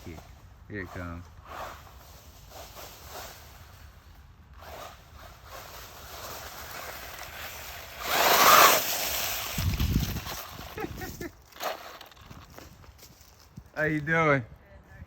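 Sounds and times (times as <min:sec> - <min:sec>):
rc truck driving over leaves: 0:00.0 - 0:13.9.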